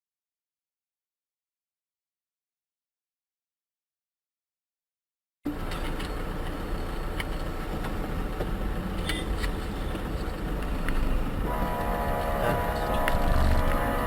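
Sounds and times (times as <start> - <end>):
engine and road rumble: 5.5 - 14.0.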